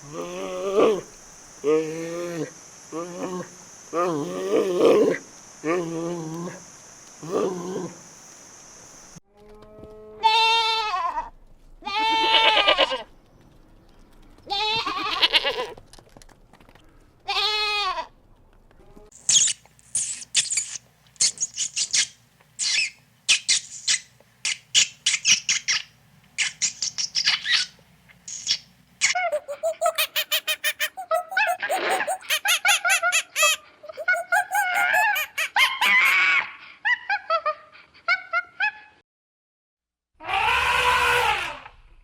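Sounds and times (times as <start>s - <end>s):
farm animal bleating: 9.8s - 13.0s, 14.5s - 15.8s, 17.3s - 18.1s
high-pitched chirps or squeaks: 19.2s - 22.9s, 29.2s - 35.5s.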